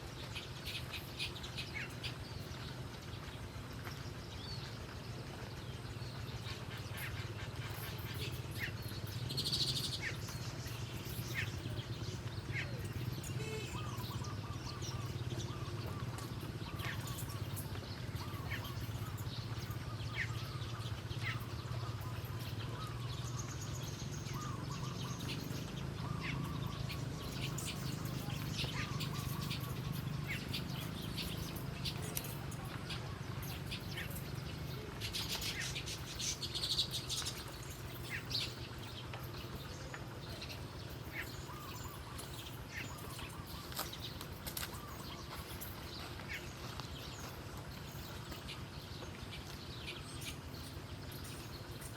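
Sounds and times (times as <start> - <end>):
wild birds chirping: 0.0 - 51.9.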